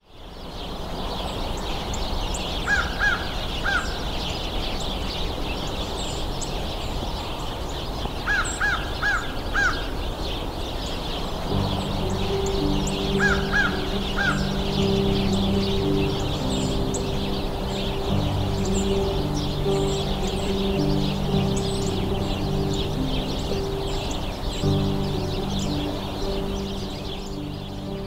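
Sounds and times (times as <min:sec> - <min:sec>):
small birds chattering: 0:00.2 - 0:28.0
music: 0:11.5 - 0:28.0.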